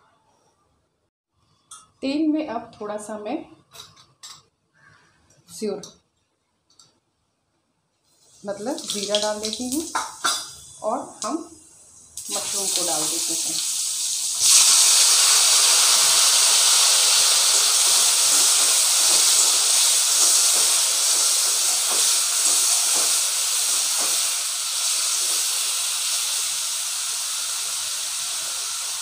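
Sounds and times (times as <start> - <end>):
mushrooms sizzling in hot oil: 8.5 - 10.6, 11.2 - 29.0.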